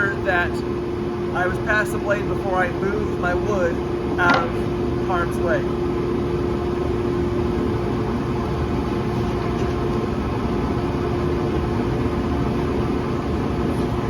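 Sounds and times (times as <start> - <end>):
dust collector droning: 0.0 - 14.0.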